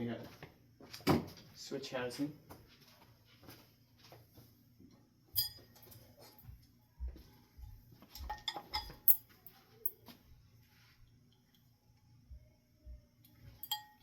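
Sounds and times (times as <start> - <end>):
metallic clinks of hardware: 5.4 - 6.4, 8.2 - 10.0, 13.3 - 14.0.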